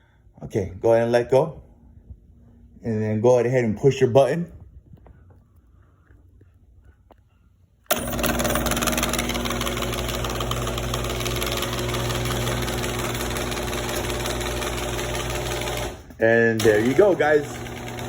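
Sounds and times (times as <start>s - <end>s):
garage door opener motor humming: 7.9s - 18.0s.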